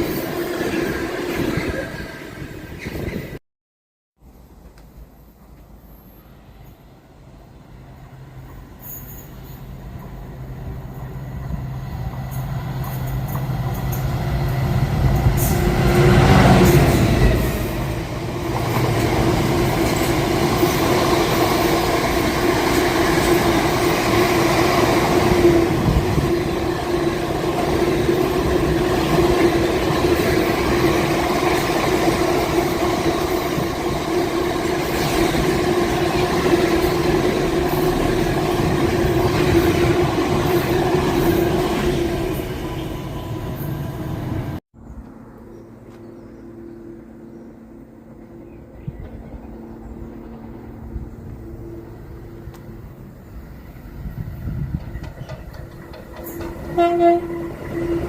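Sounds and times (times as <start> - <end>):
train passing: 0.0 - 3.4, 4.4 - 58.0
rumble of rolling vehicles: 42.8 - 58.0.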